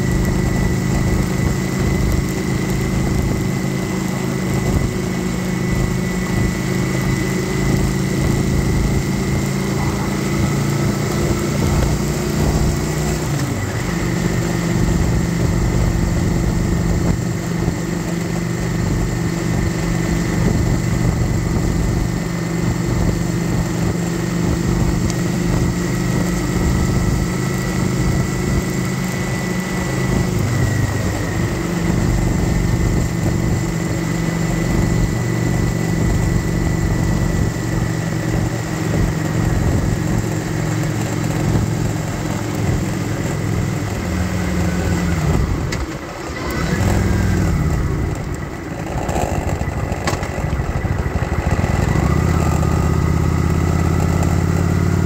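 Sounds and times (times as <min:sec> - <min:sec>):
motorcycle engine running: 0:00.0 - 0:55.0
road noise: 0:00.0 - 0:55.0
wind rush: 0:04.2 - 0:28.6.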